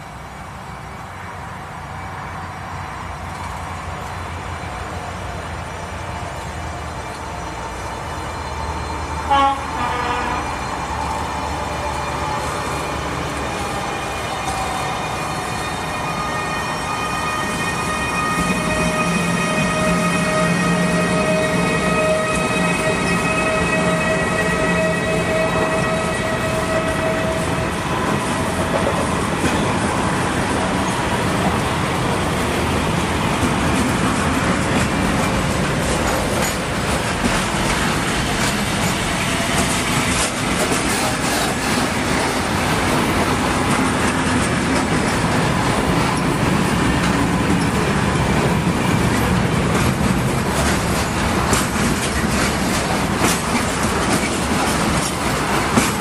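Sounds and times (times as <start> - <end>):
freight train wheels rumbling on rails: 0.0 - 56.0
wheels clattering over rail joints: 33.3 - 56.0.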